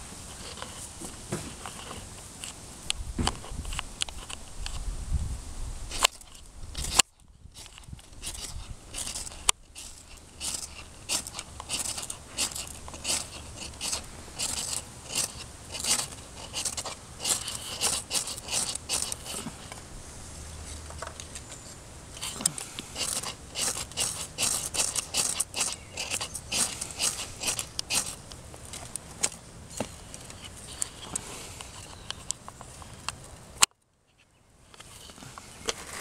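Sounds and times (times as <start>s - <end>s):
knife scraping wood: 0.2s - 2.6s, 5.9s - 19.8s, 20.6s - 33.1s.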